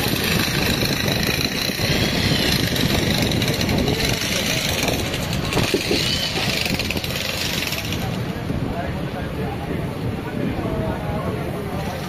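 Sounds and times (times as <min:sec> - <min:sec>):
train coaches rumbling: 0:00.0 - 0:09.6.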